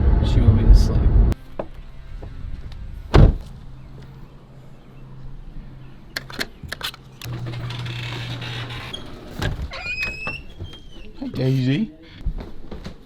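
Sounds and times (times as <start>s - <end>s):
door shutting heavily: 3.1s - 3.5s.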